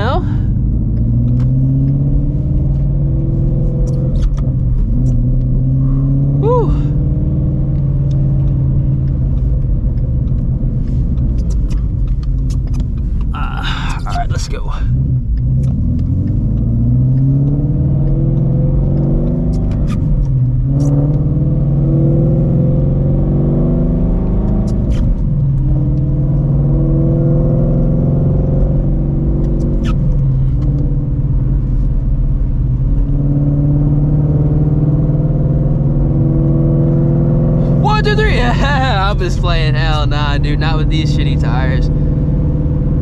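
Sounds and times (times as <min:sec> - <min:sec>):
gear shift click: 0:00.0 - 0:06.1, 0:07.1 - 0:27.0, 0:27.7 - 0:33.2
car engine accelerating: 0:00.0 - 0:43.0.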